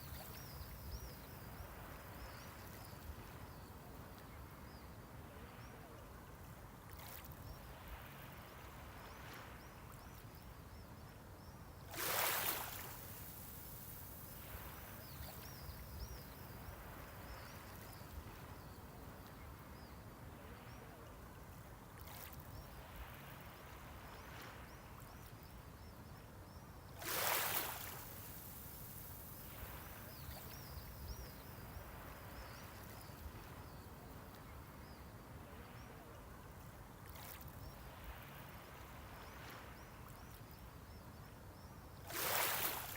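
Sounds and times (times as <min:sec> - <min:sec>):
low wash of sea: 0:00.0 - 0:42.9
waves breaking: 0:11.9 - 0:18.6, 0:27.0 - 0:34.2, 0:42.1 - 0:42.9.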